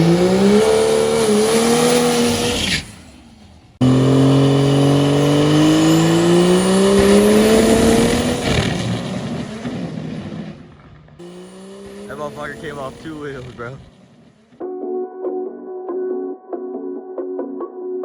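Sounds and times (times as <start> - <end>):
diesel truck engine revving: 0.0 - 14.6.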